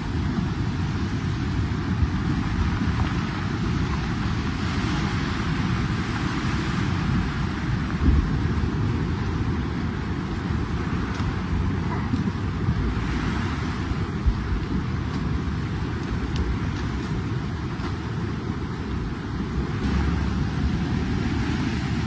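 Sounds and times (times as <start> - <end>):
floodwater rushing: 0.0 - 22.0
wind buffeting microphone: 0.0 - 22.0
dull bump: 8.0 - 9.0.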